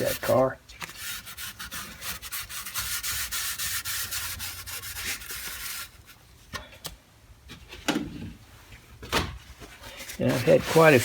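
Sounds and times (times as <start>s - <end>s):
scrubbing steel by hand: 10.3s - 11.0s.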